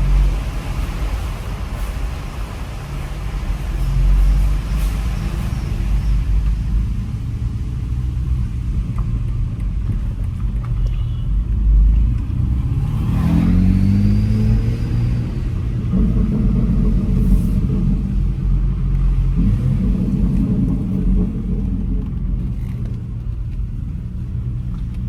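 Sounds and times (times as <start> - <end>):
low road rumble: 0.0 - 25.0
car engine revving: 11.4 - 25.0.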